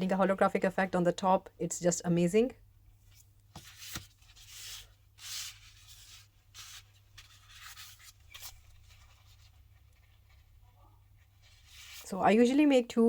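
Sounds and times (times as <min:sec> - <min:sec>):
hands rubbing resin coasters: 0:03.1 - 0:12.1.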